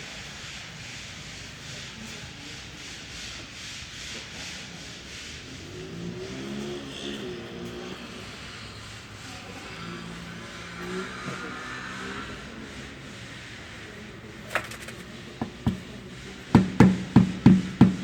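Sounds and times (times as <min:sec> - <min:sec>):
rhythmic scraping strokes: 0:00.7 - 0:18.0.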